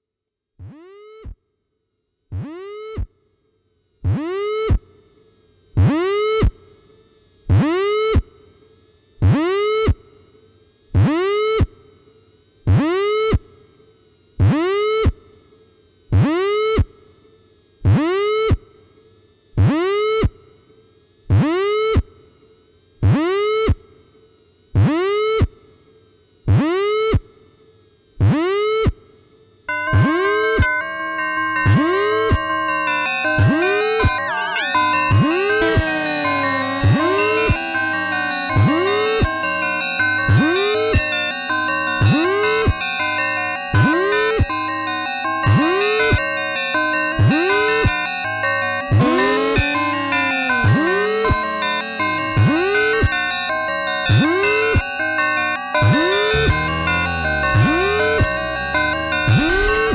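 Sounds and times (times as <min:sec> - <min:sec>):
repeated swooping synth note: 0:33.3 - 0:42.4, 0:49.0 - 0:54.8, 0:55.9 - 0:59.9.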